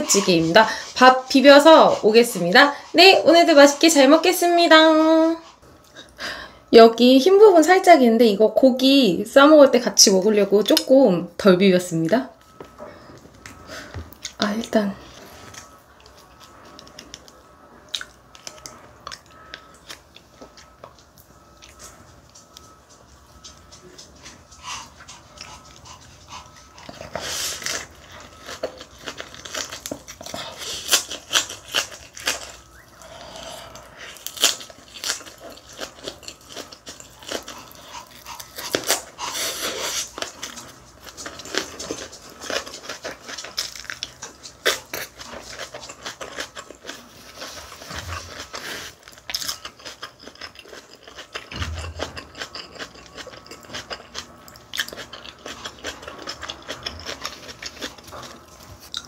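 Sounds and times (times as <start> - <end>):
crunching raw cabbage leaf: 27.3 - 33.2, 33.8 - 53.3.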